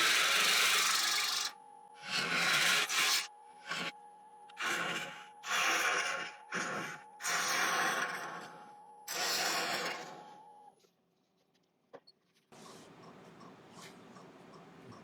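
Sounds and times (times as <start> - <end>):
gouge shaving wood: 0.0 - 3.9
lathe humming: 0.0 - 10.5.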